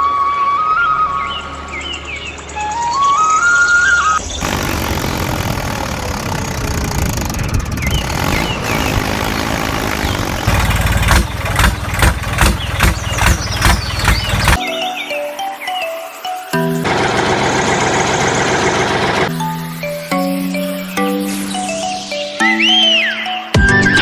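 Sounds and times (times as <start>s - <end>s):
small diesel engine running: 4.2s - 14.6s, 16.6s - 20.1s
engine knocking: 4.4s - 14.6s, 16.8s - 19.3s.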